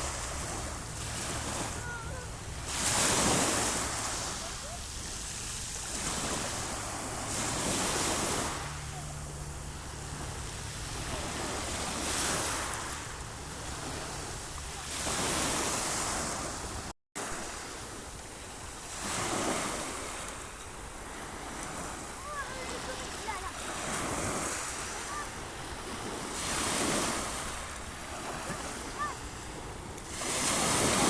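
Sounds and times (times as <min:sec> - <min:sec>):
low wind rumble: 0:00.0 - 0:16.9
sea waves breaking: 0:00.0 - 0:31.0.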